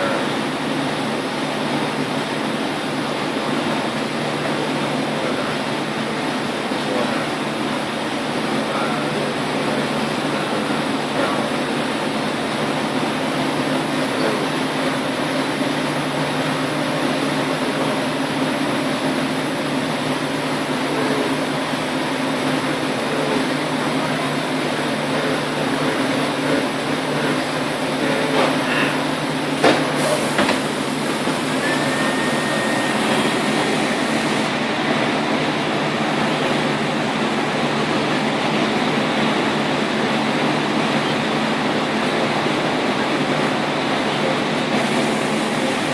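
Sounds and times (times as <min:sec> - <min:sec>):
machine humming: 0:00.0 - 0:45.9
brief high whine: 0:30.0 - 0:34.5.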